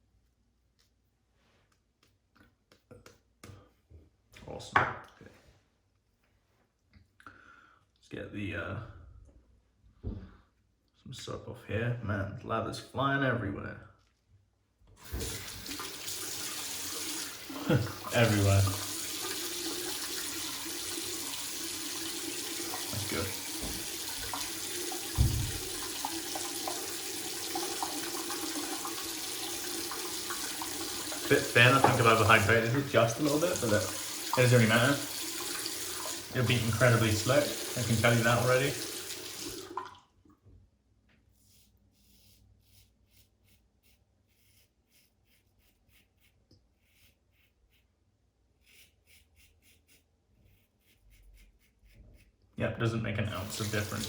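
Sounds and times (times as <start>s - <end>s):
tap water running into sink: 15.0s - 40.0s, 53.3s - 54.0s
low thump: 25.2s - 25.7s
razor scratching stubble: 31.3s - 33.9s, 41.3s - 48.0s, 48.6s - 52.4s.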